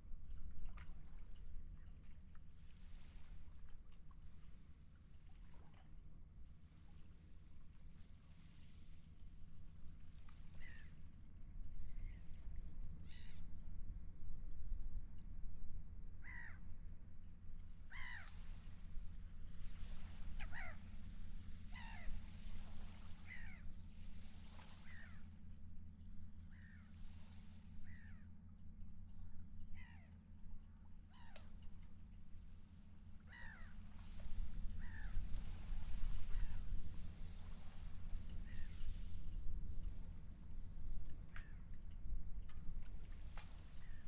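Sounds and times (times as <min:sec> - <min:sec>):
seagulls calling: 0:16.2 - 0:16.6, 0:17.9 - 0:18.4, 0:20.3 - 0:21.0, 0:21.7 - 0:22.3, 0:23.1 - 0:23.7, 0:24.8 - 0:25.3, 0:29.7 - 0:30.1, 0:33.2 - 0:33.8, 0:34.8 - 0:35.2.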